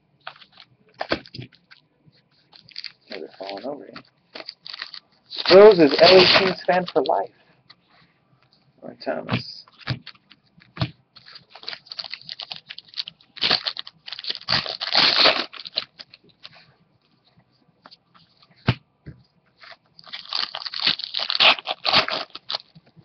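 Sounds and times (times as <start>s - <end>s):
cards rustling and clicking: 0.2s - 1.8s, 2.4s - 7.3s
foil wrappers tearing and crumpling: 2.6s - 7.2s, 11.2s - 16.5s, 20.0s - 22.8s.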